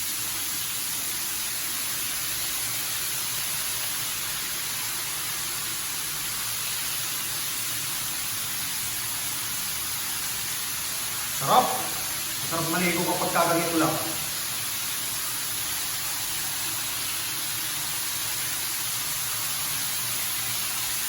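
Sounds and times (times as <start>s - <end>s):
shower water spraying: 0.0s - 21.0s.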